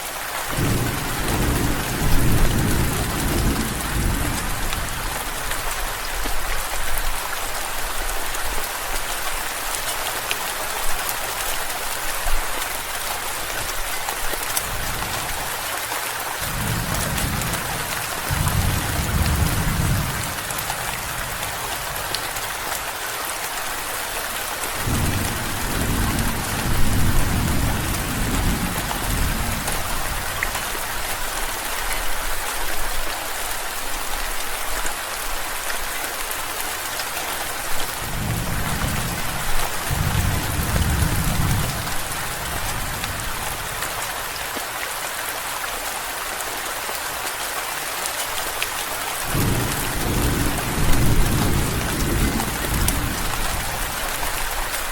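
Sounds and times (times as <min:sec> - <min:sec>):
heavy rain hissing: 0:00.0 - 0:31.7, 0:35.0 - 0:54.9
thunder rumbling: 0:00.5 - 0:05.0, 0:16.5 - 0:22.0, 0:38.1 - 0:43.7, 0:49.3 - 0:54.0.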